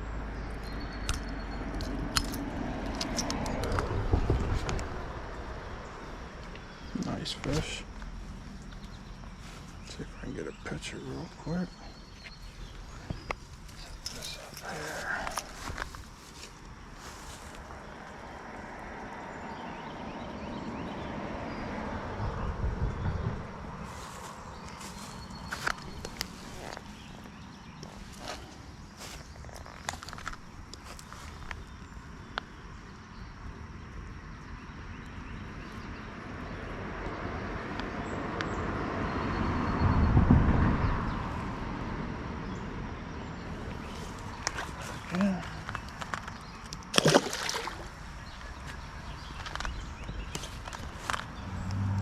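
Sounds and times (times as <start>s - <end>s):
low rumbling bumps: 1.8s - 18.0s, 39.7s - 42.6s
vehicle passing by: 17.0s - 27.2s, 36.1s - 45.9s, 47.1s - 52.0s
creek water flowing: 43.4s - 52.0s.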